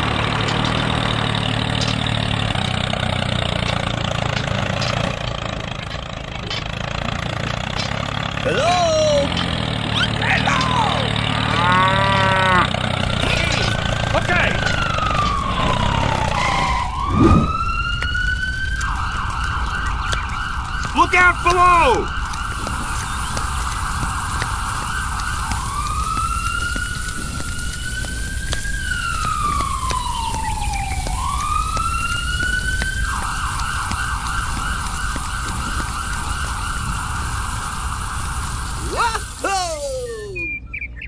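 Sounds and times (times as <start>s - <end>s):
emergency siren wailing and yelping: 8.4s - 40.7s.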